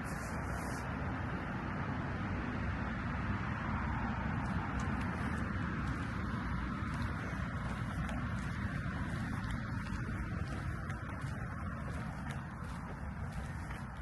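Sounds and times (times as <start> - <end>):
low unsteady rumble: 3.9 - 14.0.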